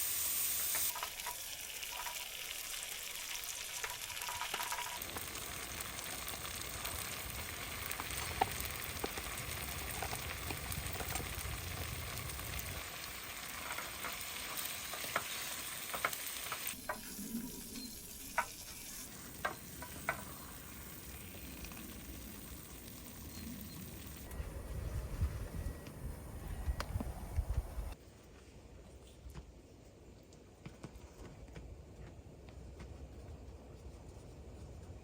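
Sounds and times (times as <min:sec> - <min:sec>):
food sizzling in a frying pan: 0:00.0 - 0:24.3.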